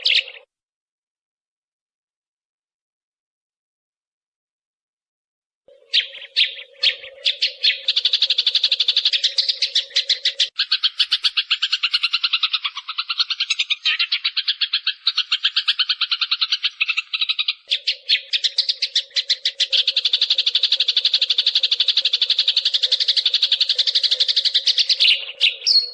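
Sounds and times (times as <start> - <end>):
sparrows chirping: 0.0 - 0.5, 5.7 - 25.9.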